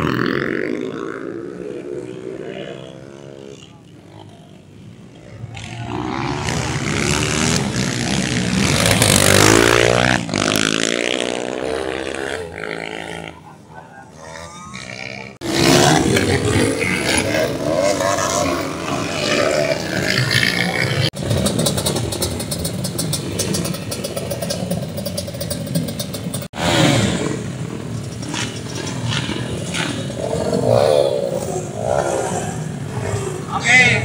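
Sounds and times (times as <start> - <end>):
dirt bike engines revving: 0.0 - 34.0.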